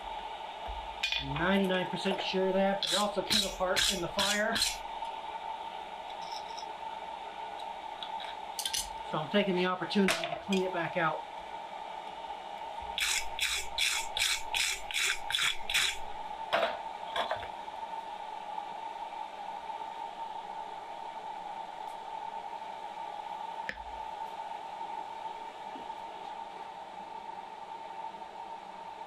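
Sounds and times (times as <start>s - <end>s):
tool scraping through fire: 2.2s - 4.8s, 13.0s - 16.1s.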